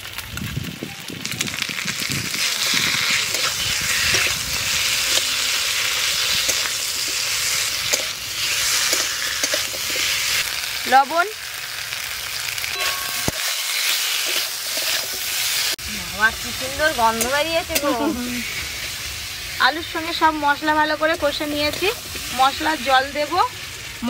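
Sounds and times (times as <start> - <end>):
potatoes sizzling in hot oil: 0.0 - 24.0
spatula scraping metal pan: 12.7 - 15.6.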